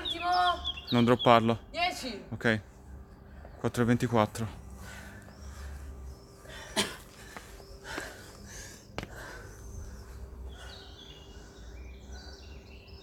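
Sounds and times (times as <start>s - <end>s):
person breathing hard: 4.7s - 12.7s.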